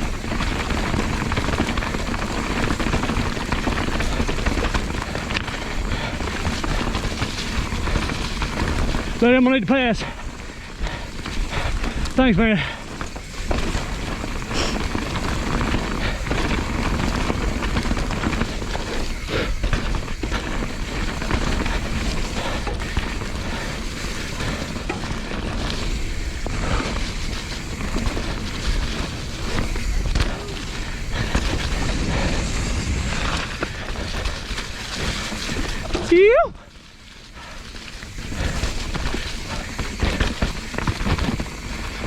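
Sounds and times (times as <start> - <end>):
bike knocking and clattering: 0.0 - 42.0
bike tyre noise: 0.0 - 42.0
wind rumble on microphone: 12.8 - 36.7.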